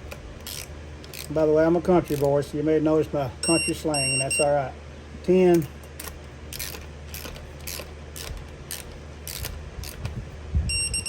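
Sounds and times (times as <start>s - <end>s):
ratcheting torque wrench clicking: 0.4s - 1.4s, 6.0s - 10.1s.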